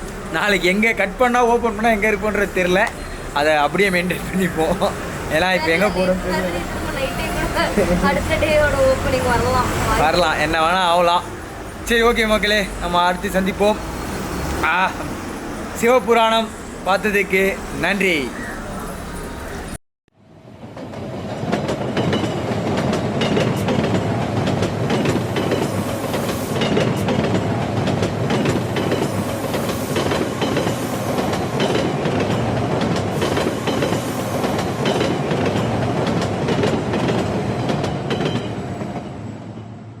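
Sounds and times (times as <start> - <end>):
wheels clacking over track: 0.0 - 19.8
passenger train on rails: 0.0 - 40.0.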